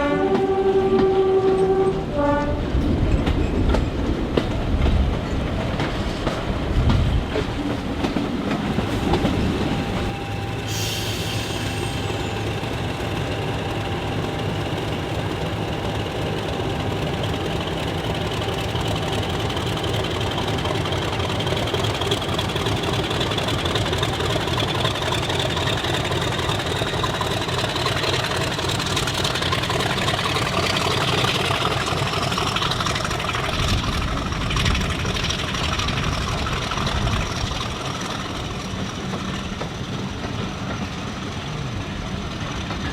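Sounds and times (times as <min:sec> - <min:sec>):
train engine drone: 0:00.0 - 0:42.9
short hiss: 0:10.7 - 0:12.1.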